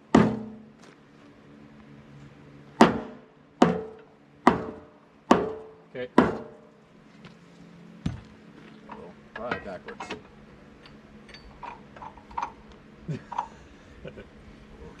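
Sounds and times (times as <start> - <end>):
hammer striking metal: 2.8 - 6.6.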